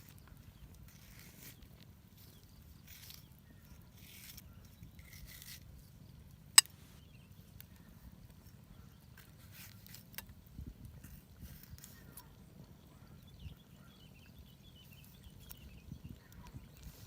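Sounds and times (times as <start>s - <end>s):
faint rustling and scraping: 0.0s - 12.9s, 14.8s - 17.0s.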